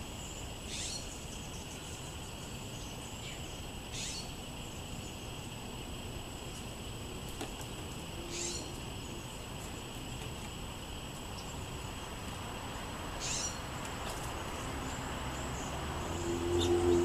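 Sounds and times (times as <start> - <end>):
outdoor background noise: 0.0 - 17.0
high bird calls: 0.6 - 2.1, 2.8 - 4.4, 8.3 - 9.2, 13.2 - 13.6, 15.4 - 17.0.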